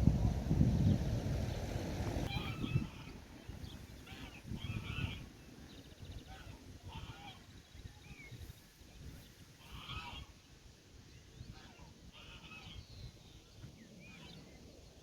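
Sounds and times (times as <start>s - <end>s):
low rumble: 0.0s - 2.3s.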